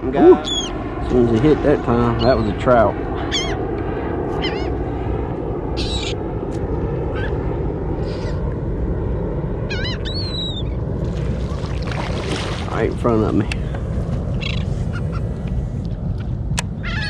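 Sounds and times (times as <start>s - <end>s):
seagulls calling: 0.1s - 0.8s, 1.9s - 4.8s, 5.8s - 6.2s, 7.1s - 7.4s, 8.0s - 8.5s, 9.6s - 12.9s, 13.6s - 15.4s, 16.8s - 17.0s
wind and water hiss: 10.8s - 16.8s.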